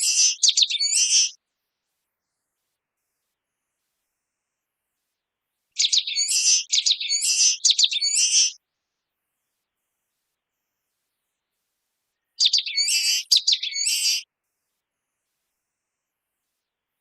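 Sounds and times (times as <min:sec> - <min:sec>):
small bird singing high song: 0:00.0 - 0:01.4, 0:05.7 - 0:08.6, 0:10.8 - 0:14.3.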